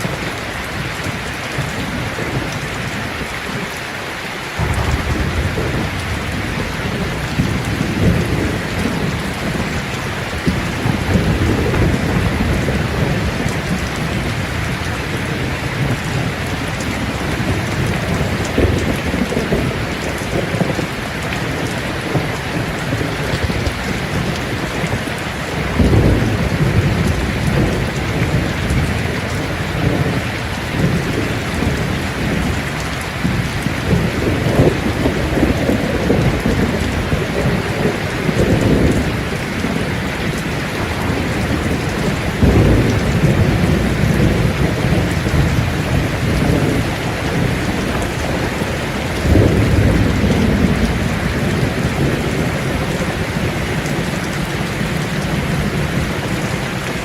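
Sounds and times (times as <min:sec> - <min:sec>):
heavy rain: 0:00.0 - 0:57.0
thunder rumbling: 0:04.6 - 0:56.8.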